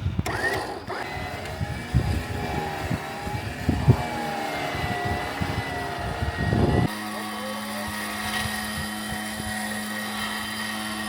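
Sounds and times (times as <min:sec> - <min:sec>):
truck engine under load: 0:00.0 - 0:11.0
thin high whine: 0:03.4 - 0:11.0.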